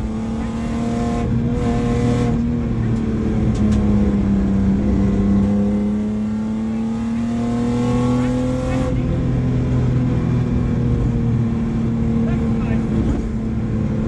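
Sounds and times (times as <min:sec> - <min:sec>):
car engine pulling hard: 0:00.0 - 0:14.0.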